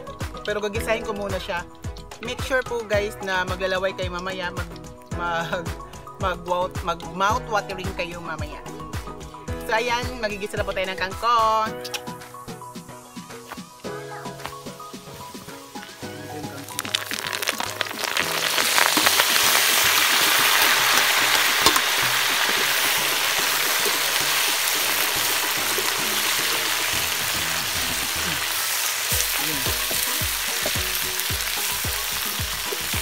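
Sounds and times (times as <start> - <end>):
greens sizzling in a wok: 13.4 - 33.0.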